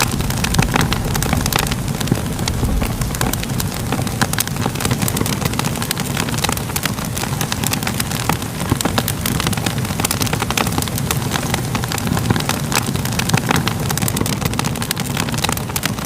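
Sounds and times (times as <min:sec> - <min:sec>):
steady low rumble: 0:00.0 - 0:07.6
fire crackling: 0:00.0 - 0:16.0.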